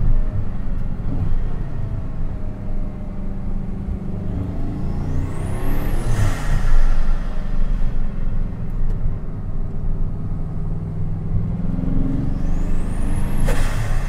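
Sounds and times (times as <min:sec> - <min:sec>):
car engine from inside cabin: 0:00.0 - 0:14.0
high turbo whistle: 0:12.2 - 0:14.0.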